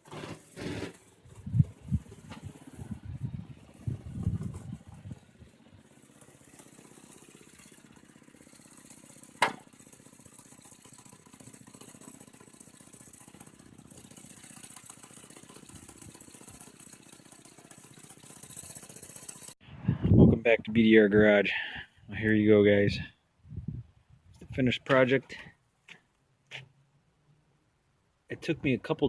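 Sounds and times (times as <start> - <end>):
small petrol engine running: 0.0 - 19.6.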